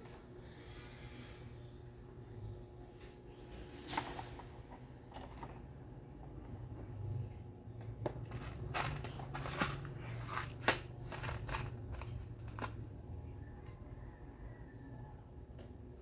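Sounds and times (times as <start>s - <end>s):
faint low hum: 0.0s - 16.0s
scraping: 8.0s - 12.8s.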